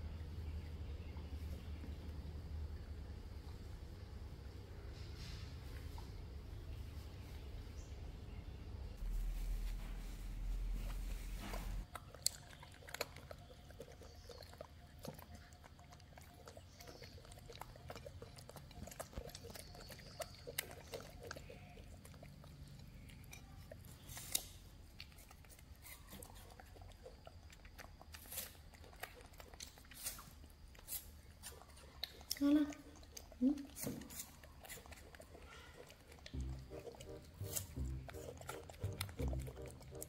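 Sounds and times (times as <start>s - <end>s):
chewing crunching and smacking: 11.8s - 40.0s.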